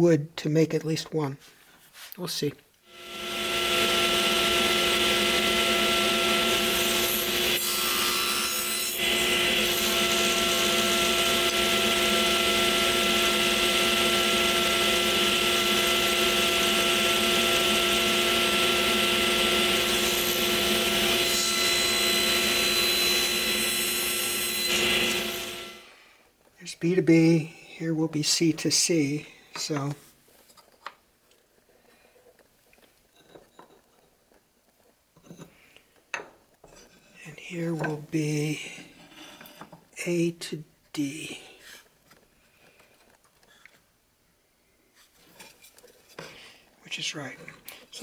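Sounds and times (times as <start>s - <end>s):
power tool cutting wood: 2.9s - 26.0s.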